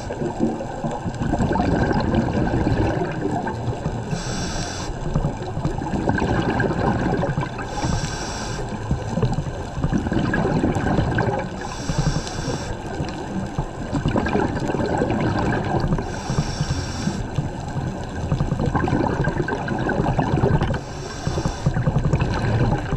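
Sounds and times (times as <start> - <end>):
gurgling rumble of bubbles: 0.0 - 22.9
regulator breathing hiss: 4.1 - 5.1, 7.6 - 8.8, 11.6 - 12.9, 16.0 - 17.4, 20.7 - 21.8.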